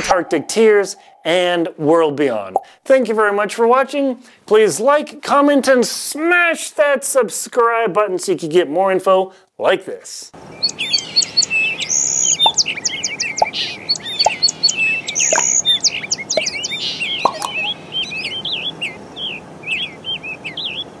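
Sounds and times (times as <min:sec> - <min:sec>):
background hiss: 0:00.0 - 0:03.0
small birds chirping: 0:10.4 - 0:21.0.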